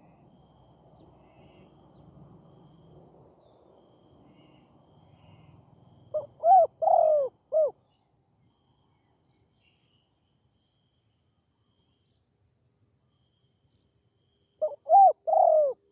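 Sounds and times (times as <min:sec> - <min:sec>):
dove cooing: 0:06.1 - 0:07.8, 0:14.6 - 0:15.9.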